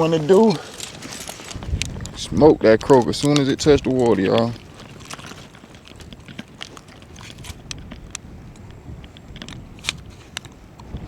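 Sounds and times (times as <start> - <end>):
fishing gear clicks and taps: 0.0 - 11.0
wind rumbling on microphone: 0.0 - 11.0.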